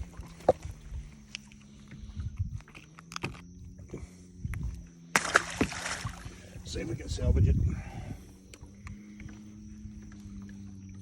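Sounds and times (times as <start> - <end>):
faint low hum: 0.0 - 11.0
fishing gear clicks and knocks: 0.4 - 3.8.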